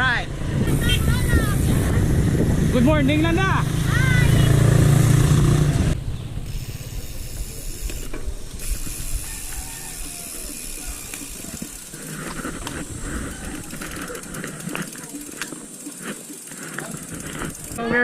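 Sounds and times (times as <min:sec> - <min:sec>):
bicycle hub ratcheting: 0:06.4 - 0:18.0.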